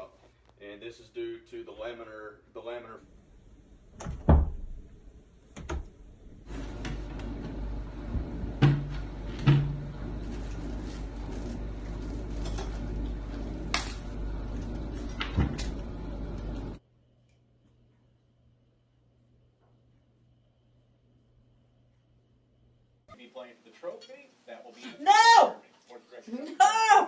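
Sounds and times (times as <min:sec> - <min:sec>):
steady background hiss: 0:23.1 - 0:26.6.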